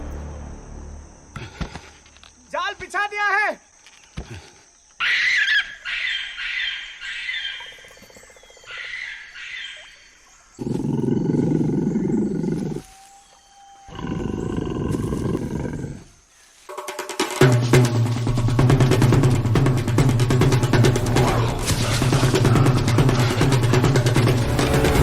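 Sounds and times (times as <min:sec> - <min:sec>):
music: 0:00.0 - 0:01.6, 0:16.7 - 0:25.0
birds calling: 0:03.8 - 0:15.5
tiger roaring: 0:10.6 - 0:12.8, 0:13.9 - 0:16.1, 0:20.8 - 0:25.0.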